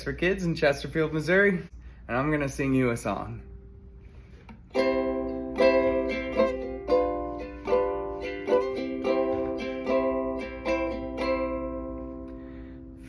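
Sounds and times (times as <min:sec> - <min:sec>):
chords strummed on string instrument: 0:04.7 - 0:13.0.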